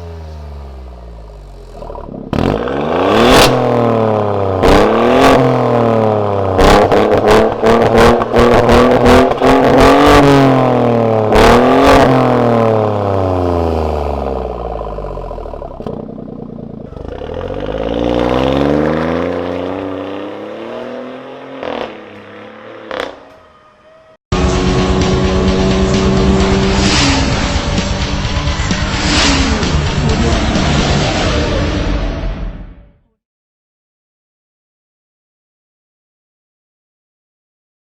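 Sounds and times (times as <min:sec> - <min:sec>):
car engine revving: 0:00.0 - 0:23.6, 0:24.3 - 0:32.9
exhaust cracks: 0:01.2 - 0:03.8, 0:11.2 - 0:19.9.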